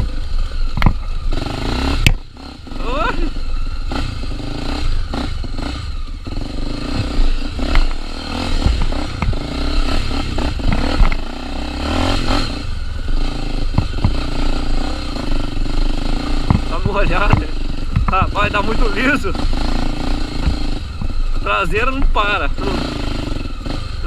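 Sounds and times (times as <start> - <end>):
motorcycle engine under load: 0.0 - 24.0
motorcycle clattering knocks: 7.0 - 9.5, 16.4 - 18.4.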